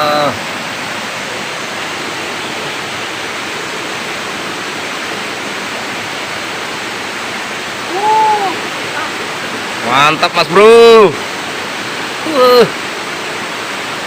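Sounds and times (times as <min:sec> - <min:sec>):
river rapids rushing: 0:00.0 - 0:14.0
rising and falling call: 0:07.9 - 0:08.8.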